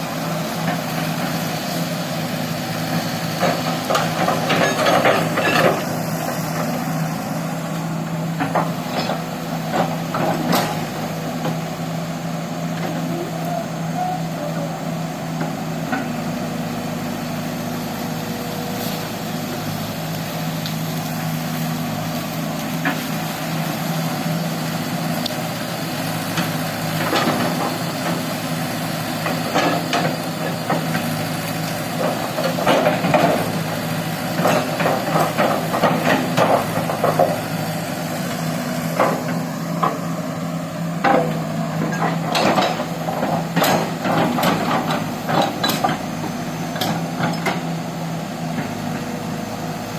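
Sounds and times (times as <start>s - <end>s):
excavator diesel engine running: 0.0s - 49.9s
machine knocking and clattering: 34.4s - 37.5s.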